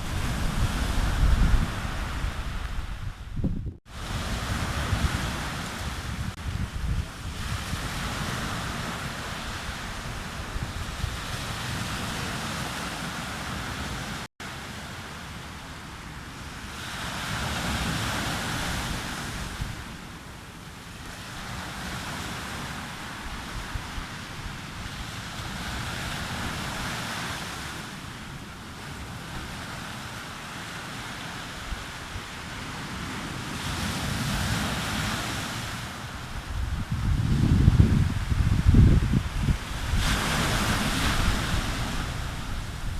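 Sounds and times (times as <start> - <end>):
wind buffeting microphone: 0.0 - 14.2, 36.0 - 42.9
sea waves breaking on beach: 0.0 - 42.9.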